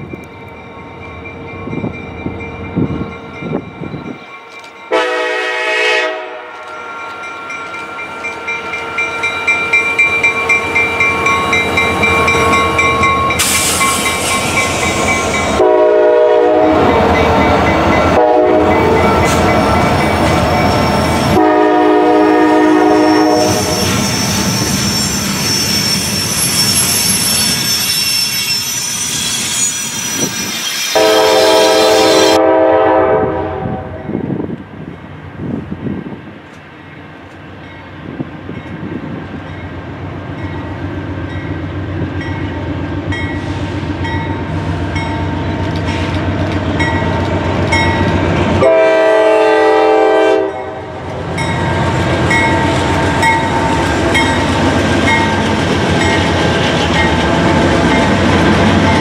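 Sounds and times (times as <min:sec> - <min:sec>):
locomotive air horn blasts: 0:04.9 - 0:06.8, 0:15.5 - 0:17.0, 0:18.1 - 0:19.1, 0:21.2 - 0:23.9, 0:31.0 - 0:34.2, 0:48.6 - 0:51.0
train wheels clacking on rail: 0:06.6 - 0:16.0, 0:17.0 - 0:21.5, 0:42.2 - 0:48.7, 0:51.0 - 0:59.0.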